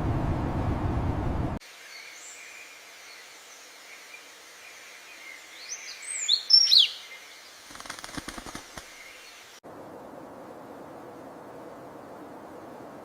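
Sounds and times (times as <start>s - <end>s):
songbird singing: 1.6s - 9.6s.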